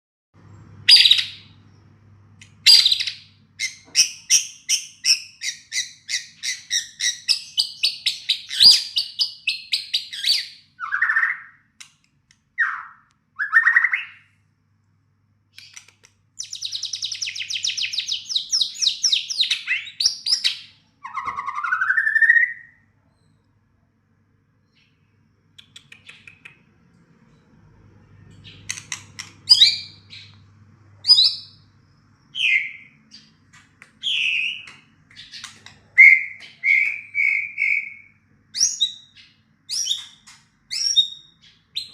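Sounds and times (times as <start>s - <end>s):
shama bird singing: 0.8s - 11.7s, 12.6s - 14.3s, 16.4s - 22.8s, 28.1s - 41.9s.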